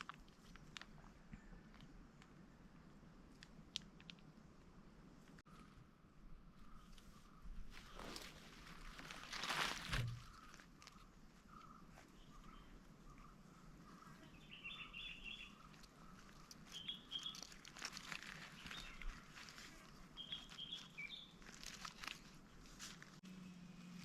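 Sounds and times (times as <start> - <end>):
faint clicks and rustles: 0.0 - 5.6, 15.5 - 24.0
small birds chirping: 6.6 - 24.0.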